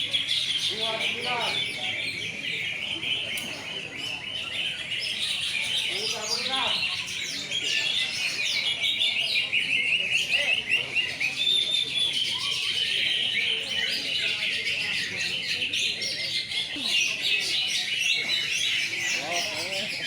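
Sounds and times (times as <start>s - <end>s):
many birds singing: 0.0s - 20.0s.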